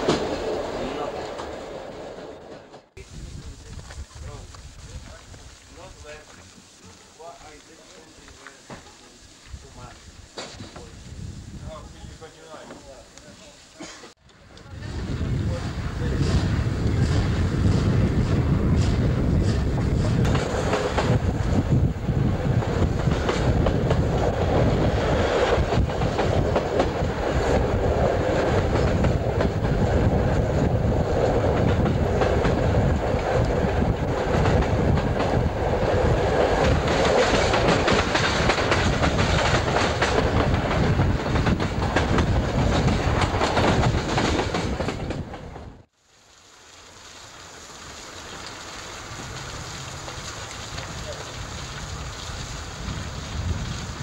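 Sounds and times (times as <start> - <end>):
train rumble: 0.0 - 45.9
wind: 0.0 - 54.0
wheels clicking over rail joints: 19.2 - 45.8
rushing water: 45.9 - 54.0.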